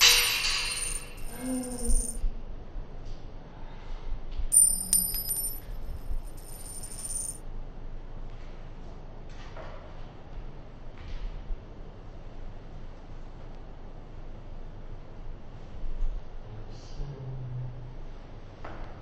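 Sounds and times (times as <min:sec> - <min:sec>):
bright metallic jingle: 0:00.0 - 0:02.2, 0:04.6 - 0:07.4.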